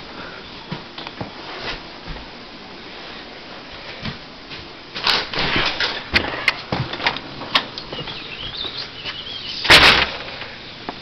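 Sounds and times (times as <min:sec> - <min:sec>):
burst of noise: 0:09.5 - 0:10.5.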